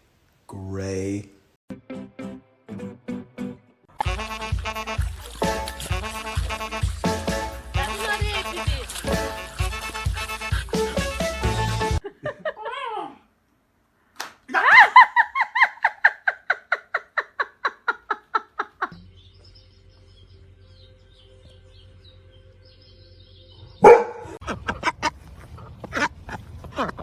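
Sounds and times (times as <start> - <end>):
dog yapping: 23.8 - 24.4.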